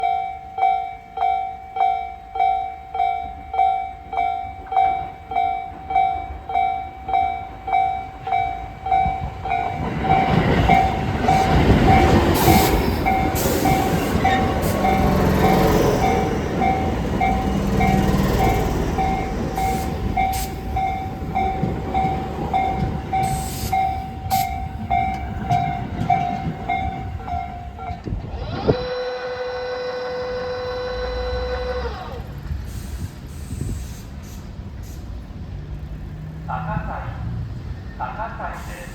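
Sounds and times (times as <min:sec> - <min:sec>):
level crossing bell clanging: 0:00.0 - 0:28.2
electric train arriving: 0:00.0 - 0:38.9
train wheels clicking over rail joints: 0:04.5 - 0:28.8.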